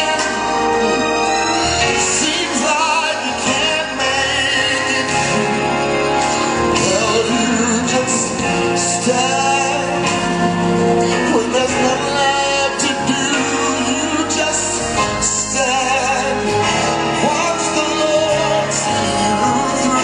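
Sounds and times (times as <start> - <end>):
gospel singer holding long notes: 0.0 - 20.0
instrumental backing: 0.0 - 20.0.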